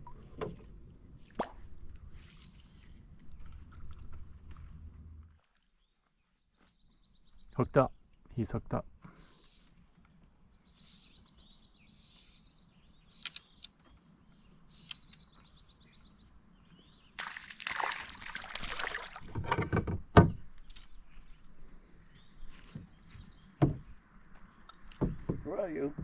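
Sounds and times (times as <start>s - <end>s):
water splashing and sloshing: 0.0s - 5.6s, 17.2s - 20.0s
knocks against canoe: 19.2s - 20.4s, 23.6s - 23.9s, 24.9s - 25.5s.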